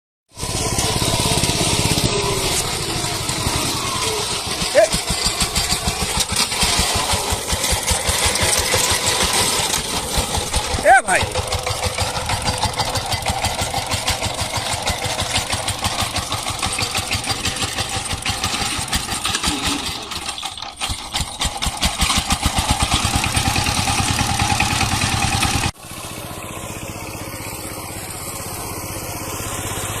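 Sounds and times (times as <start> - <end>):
tractor engine chugging: 0.4 - 30.0.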